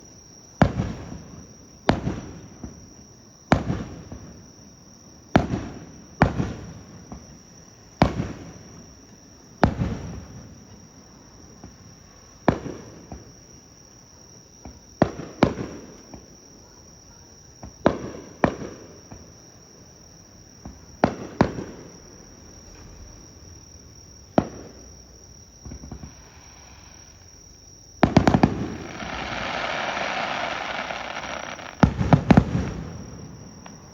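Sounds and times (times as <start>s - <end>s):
fireworks bursting with booming echo: 0.6s - 4.6s, 5.3s - 9.0s, 9.6s - 10.6s, 11.6s - 13.5s, 14.6s - 16.4s, 17.6s - 19.4s, 20.6s - 22.0s, 24.3s - 33.9s
high insect trill: 10.2s - 33.9s.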